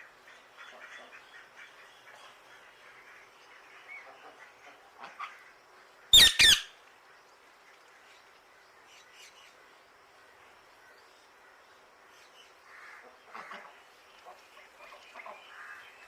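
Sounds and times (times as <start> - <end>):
faint bird calls: 0.2 - 6.8
parrot squawking: 6.2 - 6.7.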